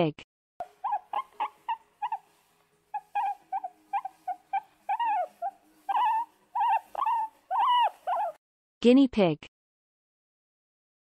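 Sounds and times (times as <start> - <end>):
guinea pigs squeaking: 0.6 - 8.4
guinea pig whistling calls: 0.7 - 2.2, 3.0 - 8.4.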